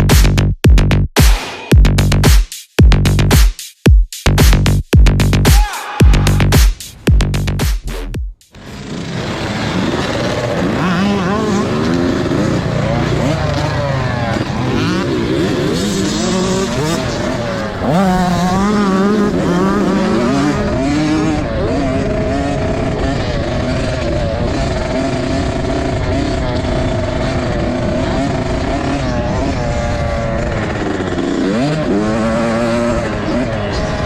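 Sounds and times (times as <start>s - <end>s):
dirt bike engines revving: 8.5s - 34.0s.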